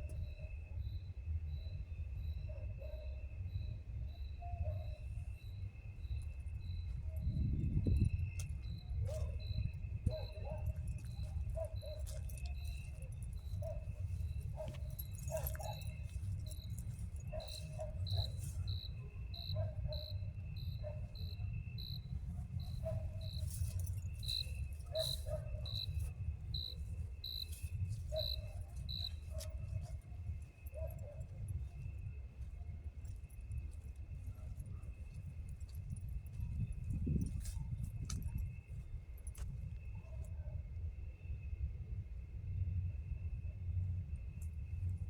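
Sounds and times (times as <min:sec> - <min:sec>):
cricket chirping: 0:00.0 - 0:45.0
high insect drone: 0:14.2 - 0:29.2.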